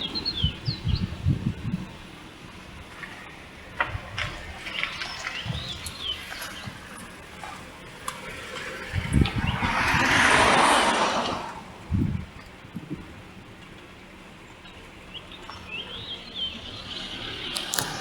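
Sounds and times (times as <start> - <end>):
birds chirping: 0.0 - 10.3, 13.5 - 18.0
rushing noise: 6.8 - 12.5.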